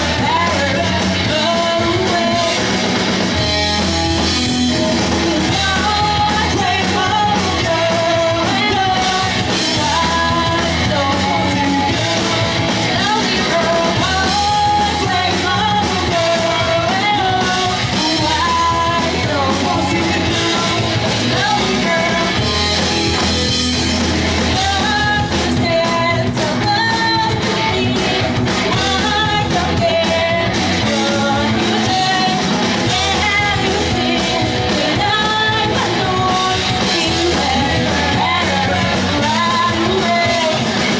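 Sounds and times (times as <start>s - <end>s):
bass guitar: 0.0s - 40.9s
distorted electric guitars: 0.0s - 40.9s
drums: 0.0s - 40.9s
lead vocalist singing: 0.0s - 40.9s.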